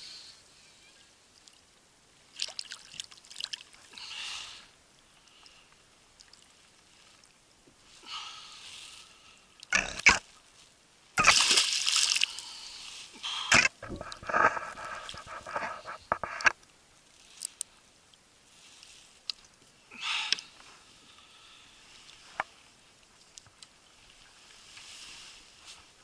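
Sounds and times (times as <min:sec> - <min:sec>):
water splashing: 0:02.3 - 0:03.9, 0:11.2 - 0:12.6.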